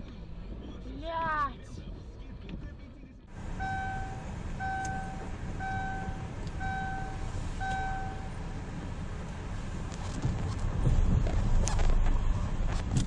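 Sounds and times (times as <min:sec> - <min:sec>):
low engine rumble: 0:00.0 - 0:13.0
reversing alarm beeping: 0:03.4 - 0:08.5.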